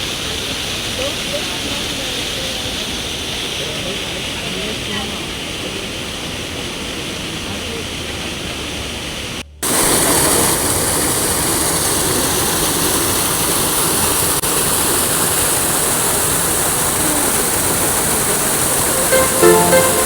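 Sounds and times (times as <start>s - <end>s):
running water rushing: 9.6s - 20.0s.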